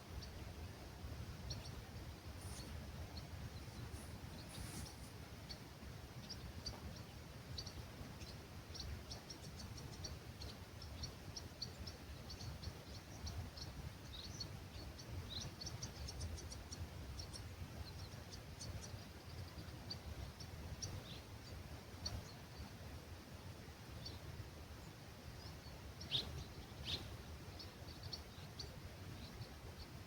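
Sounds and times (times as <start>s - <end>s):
small birds chirping: 0.0s - 30.0s
breeze rumble: 1.0s - 6.9s.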